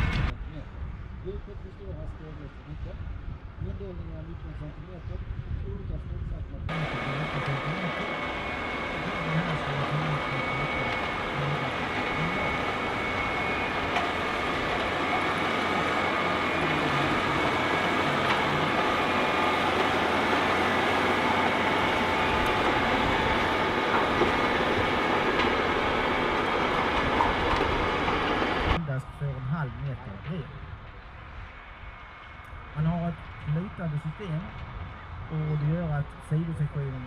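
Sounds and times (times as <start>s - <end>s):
tractor tilling a field: 6.7s - 28.8s.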